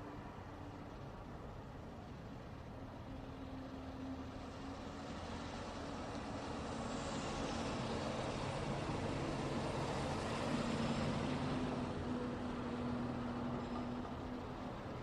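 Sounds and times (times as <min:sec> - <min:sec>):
low engine hum: 0:00.0 - 0:15.0
vehicles passing: 0:00.0 - 0:15.0.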